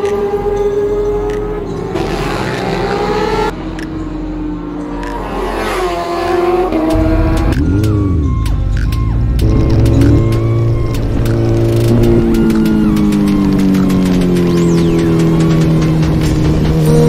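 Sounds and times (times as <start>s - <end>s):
music: 0.0s - 5.4s, 6.2s - 17.0s
motorcycle engines passing: 0.0s - 17.0s
motorcycle engine revving: 5.2s - 17.0s.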